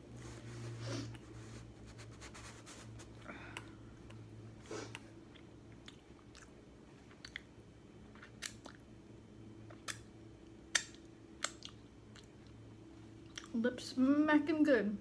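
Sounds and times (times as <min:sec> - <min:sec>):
chewing and finger sucking: 0:03.6 - 0:07.5, 0:08.1 - 0:08.9, 0:10.7 - 0:12.6.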